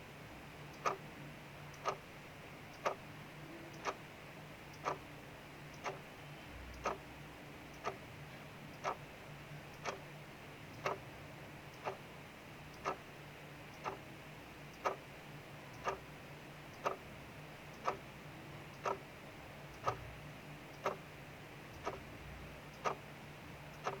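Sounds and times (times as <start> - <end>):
clock ticking: 0.8 - 1.0, 1.7 - 2.0, 2.7 - 3.0, 3.8 - 4.0, 4.8 - 5.0, 5.7 - 6.0, 6.7 - 7.0, 7.7 - 8.0, 8.8 - 9.0, 9.7 - 10.0, 10.8 - 11.0, 11.8 - 12.0, 12.7 - 13.1, 13.7 - 14.0, 14.7 - 15.1, 15.7 - 16.1, 16.8 - 17.0, 17.7 - 18.1, 18.7 - 19.0, 19.7 - 20.1, 20.8 - 21.0, 21.7 - 22.1, 22.7 - 23.0, 23.7 - 24.0.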